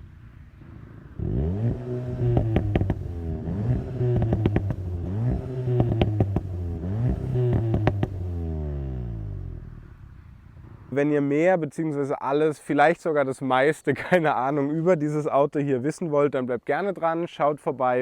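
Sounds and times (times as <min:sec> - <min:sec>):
car engine accelerating through shifts: 0:00.6 - 0:10.8
exhaust crackles and pops: 0:01.8 - 0:08.4.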